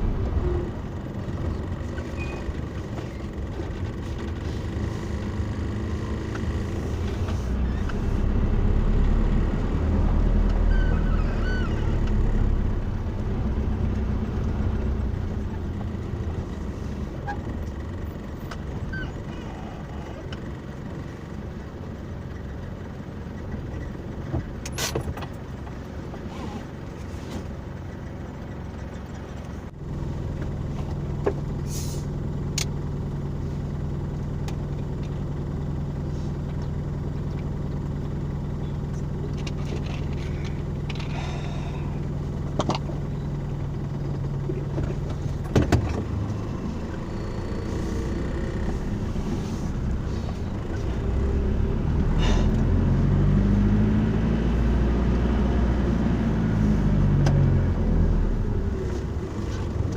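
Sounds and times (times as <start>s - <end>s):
car engine and road hum: 0.0s - 59.9s.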